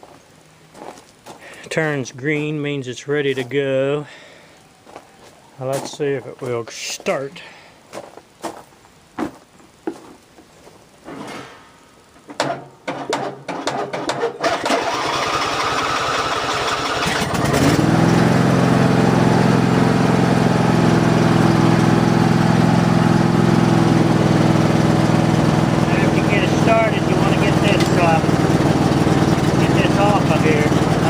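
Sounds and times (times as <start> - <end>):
clicks and knocks: 12.2 - 14.4
lawn mower engine running: 12.3 - 31.0
lawn mower engine cranking: 12.4 - 31.0.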